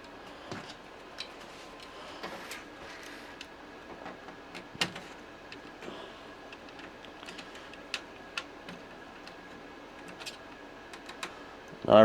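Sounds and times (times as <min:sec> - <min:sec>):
clicks of handling plastic parts: 0:00.0 - 0:11.9.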